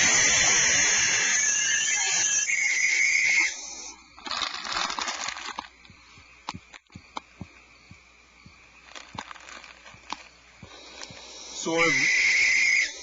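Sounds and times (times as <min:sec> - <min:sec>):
barn owls hissing: 0:00.0 - 0:04.2, 0:08.5 - 0:13.0.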